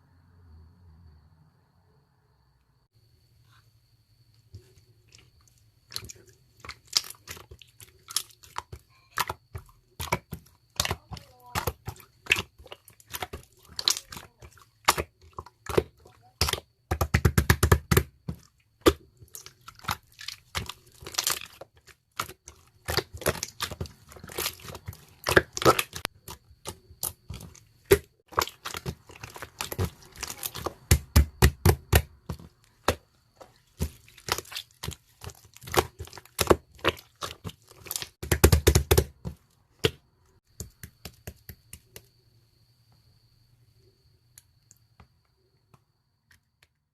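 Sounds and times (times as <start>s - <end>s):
slime crackling and popping: 18.8s - 39.1s.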